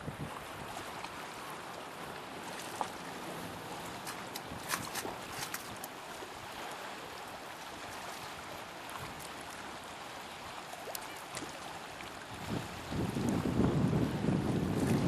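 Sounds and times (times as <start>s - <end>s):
strong wind rushing: 12.5s - 15.0s.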